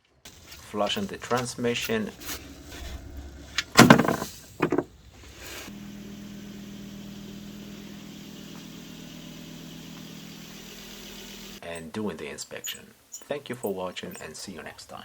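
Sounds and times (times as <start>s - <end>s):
car engine idling: 0.3s - 11.6s.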